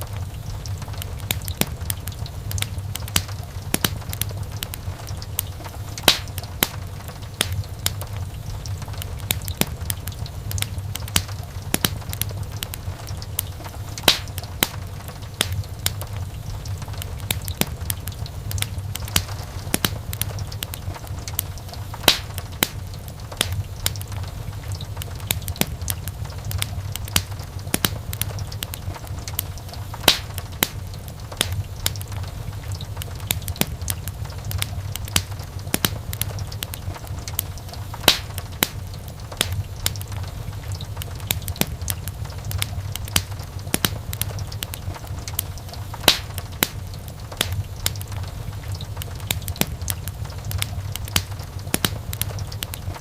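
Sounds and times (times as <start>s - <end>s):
loud snap of fire: 0.0s - 53.0s
wood fire crackling: 0.0s - 53.0s.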